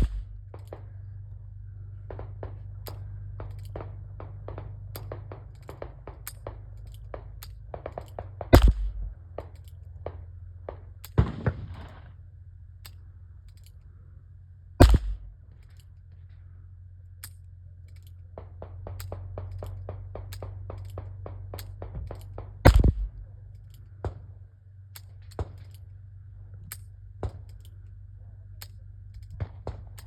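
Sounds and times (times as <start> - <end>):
revolver shots: 0.0 - 0.4, 8.5 - 9.2, 14.8 - 15.3, 22.6 - 23.2.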